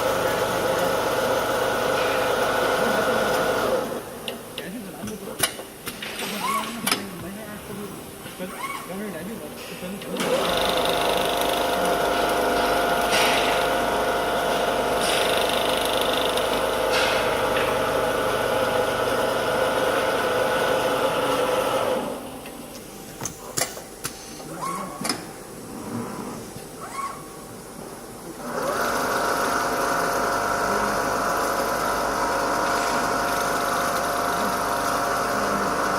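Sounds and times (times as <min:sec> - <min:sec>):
sewing machine stitching: 0:10.2 - 0:22.2, 0:28.4 - 0:35.9.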